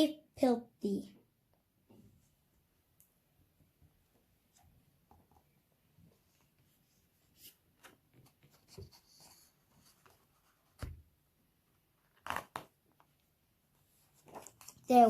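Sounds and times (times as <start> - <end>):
book pages turning: 12.0 - 13.2, 14.0 - 15.0.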